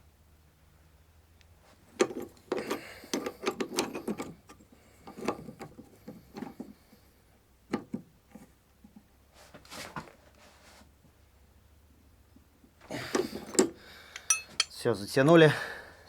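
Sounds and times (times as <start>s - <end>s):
wrench clicking on metal: 13.5s - 14.8s
metal knocks: 14.2s - 14.8s.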